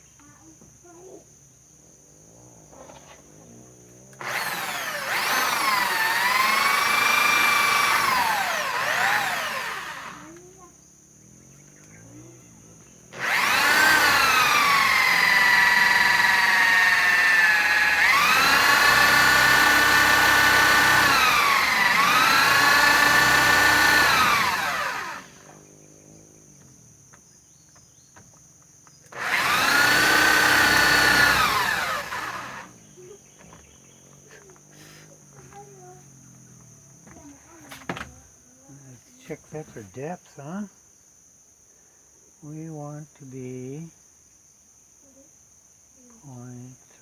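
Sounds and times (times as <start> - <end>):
electric drill boring into wood: 4.2 - 10.4, 13.2 - 25.5, 29.1 - 32.8.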